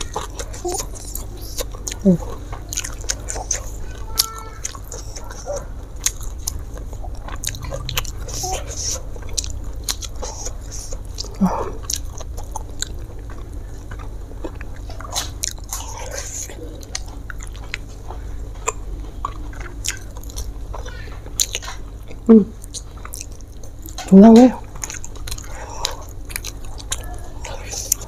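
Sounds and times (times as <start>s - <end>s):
food crunching: 0.0s - 28.0s
person chewing food: 0.0s - 28.0s
steady low hum: 0.0s - 28.0s
wet mouth clicks: 7.3s - 13.0s.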